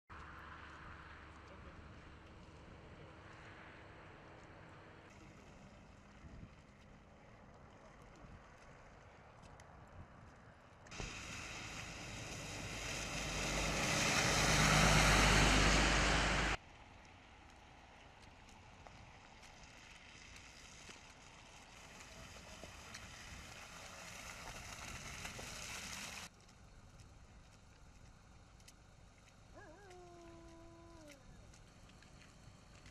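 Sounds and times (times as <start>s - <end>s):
road traffic noise: 10.9s - 16.6s
vehicle passing close: 10.9s - 16.6s.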